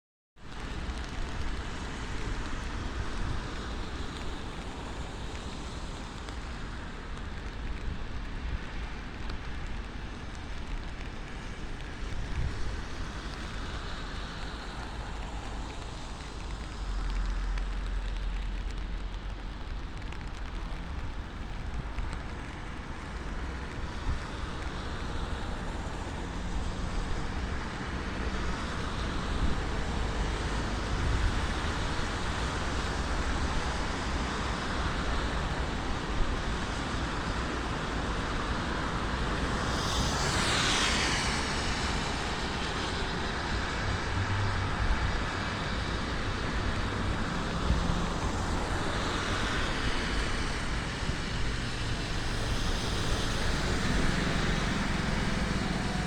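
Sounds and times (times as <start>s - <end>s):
city traffic in rain: 0.4s - 56.0s
vehicle passing close: 51.8s - 56.0s.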